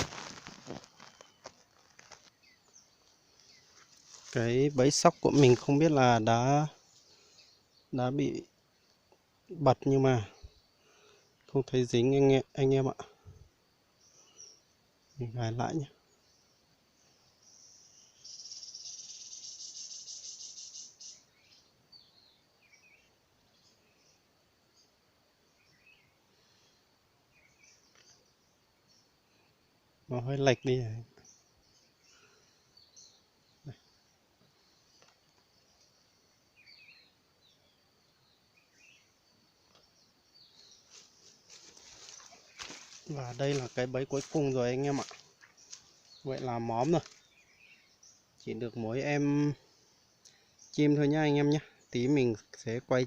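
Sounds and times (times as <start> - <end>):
faint bird chirps: 0.0 - 53.0
high insect buzz: 16.2 - 30.2, 31.2 - 48.4
insect trilling: 17.5 - 21.6.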